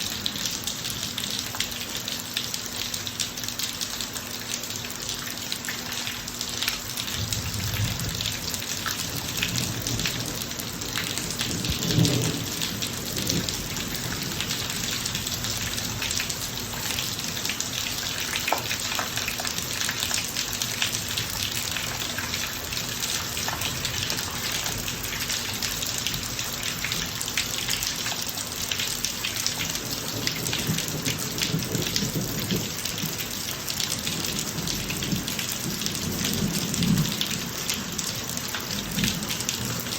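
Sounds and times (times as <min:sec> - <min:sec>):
rain drops pattering: 0:00.0 - 0:39.9
low thunder rumbles: 0:07.1 - 0:16.5.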